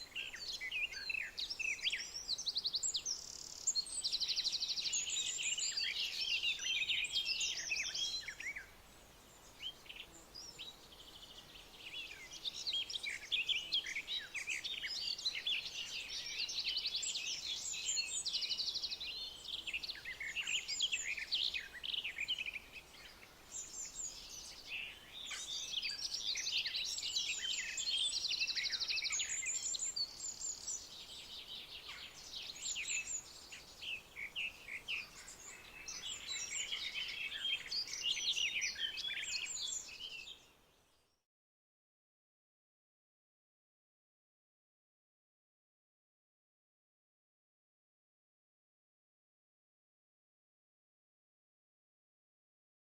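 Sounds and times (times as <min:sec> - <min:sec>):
songbirds chirping and trilling: 0:00.0 - 0:41.2.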